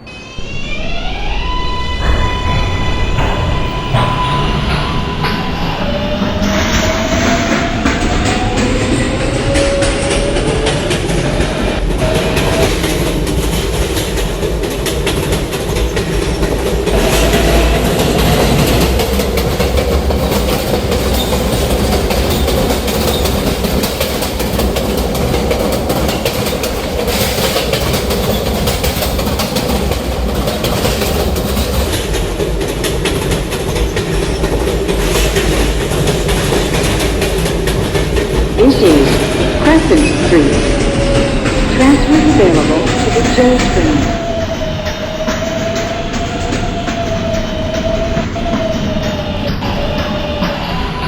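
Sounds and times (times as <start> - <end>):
train motor whine: 0.0 - 32.5
train rolling rumble: 0.0 - 51.0
wheels clicking over rail joints: 2.8 - 38.6.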